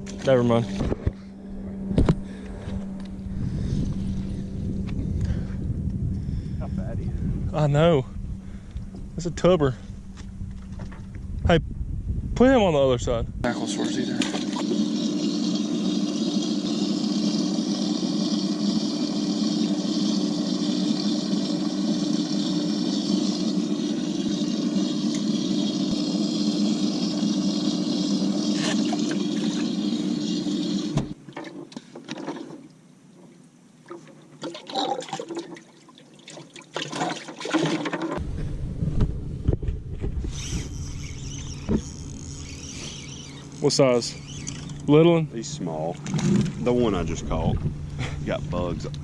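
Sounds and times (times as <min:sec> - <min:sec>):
pump humming: 0:00.0 - 0:11.2, 0:13.4 - 0:32.7, 0:34.0 - 0:49.0
water rushing: 0:13.5 - 0:31.2.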